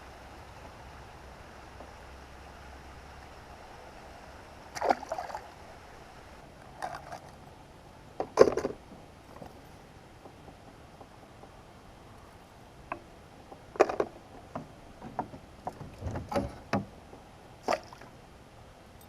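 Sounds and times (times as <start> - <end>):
low background noise: 0.0 - 19.0
kayak splashing and knocking: 4.7 - 5.5, 13.8 - 16.9.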